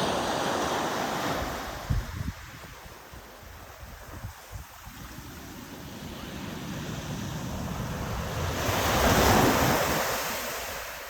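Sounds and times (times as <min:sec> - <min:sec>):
wind buffeting microphone: 0:01.4 - 0:05.3
ocean waves breaking: 0:05.7 - 0:11.0.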